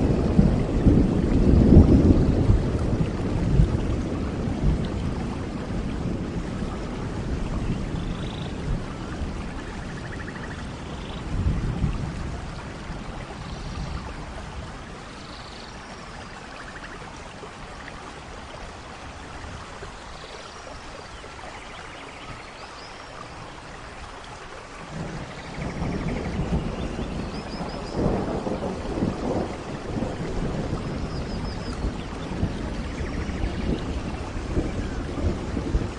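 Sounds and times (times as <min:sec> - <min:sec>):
low thunder rumble: 0:00.0 - 0:17.5, 0:24.8 - 0:35.9
steady rain falling: 0:00.0 - 0:35.9.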